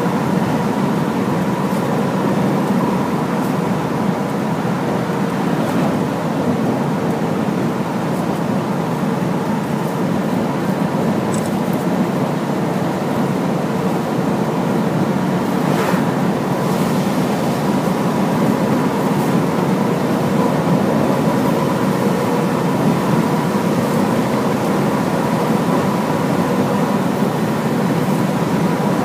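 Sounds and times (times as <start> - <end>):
truck diesel engine and road noise: 0.0 - 29.0.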